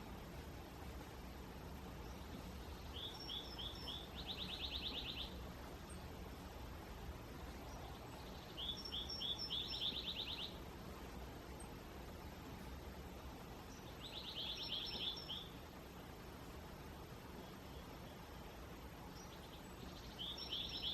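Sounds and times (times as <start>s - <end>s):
songbird singing with trill: 1.9s - 6.4s, 7.4s - 10.6s, 13.7s - 15.6s, 17.4s - 20.9s.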